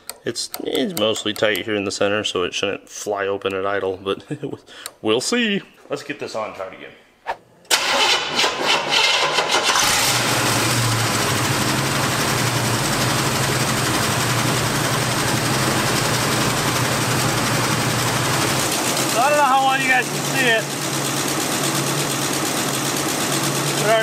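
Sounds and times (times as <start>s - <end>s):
truck engine fast idle: 9.6s - 24.0s.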